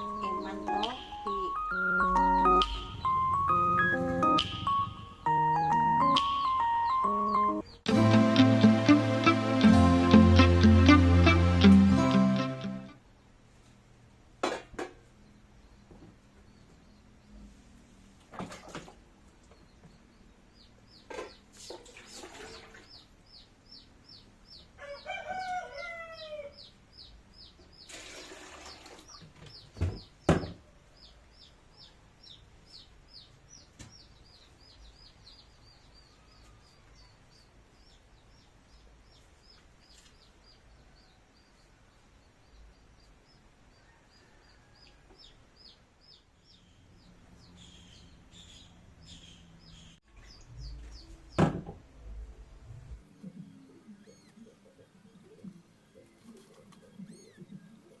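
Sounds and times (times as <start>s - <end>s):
rooster crowing: 24.8s - 26.7s
knocks: 29.8s - 30.6s, 51.4s - 51.8s
small bird chirping: 30.9s - 51.4s, 53.1s - 58.0s.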